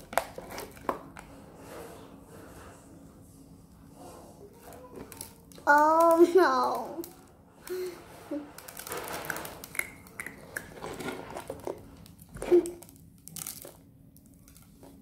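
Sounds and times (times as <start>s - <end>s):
child chewing crunchy candy: 7.0s - 15.0s.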